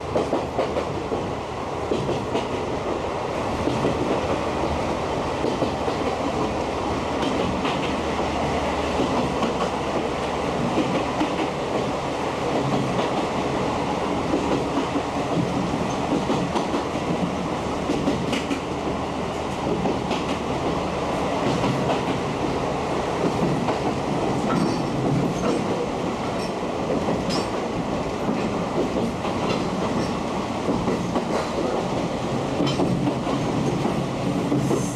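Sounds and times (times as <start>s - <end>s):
clickety-clack of rail joints: 0.0s - 34.9s
wheels rumbling on rail: 0.0s - 34.9s.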